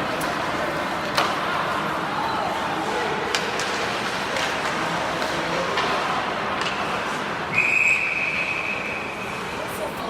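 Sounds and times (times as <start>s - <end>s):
ice rink noise: 0.0s - 10.0s
referee's whistle blast: 7.5s - 9.0s.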